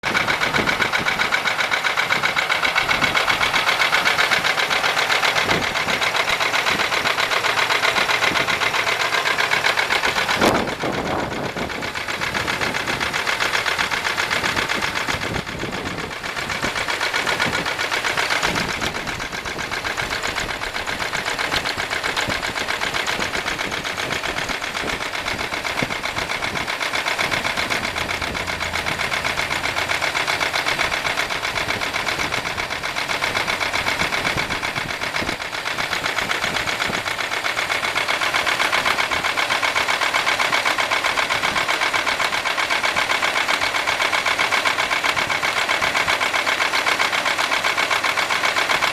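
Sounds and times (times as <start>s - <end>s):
car engine idling: 0.0s - 48.9s
rapid knocking tick: 0.1s - 48.9s.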